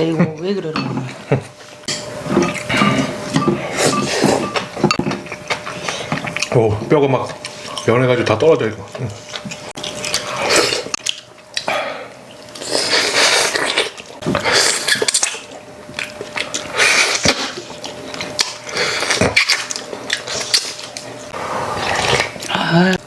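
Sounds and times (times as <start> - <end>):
utensils clinking against bowls: 0.0 - 8.7
soup slurping and chewing: 9.2 - 22.6.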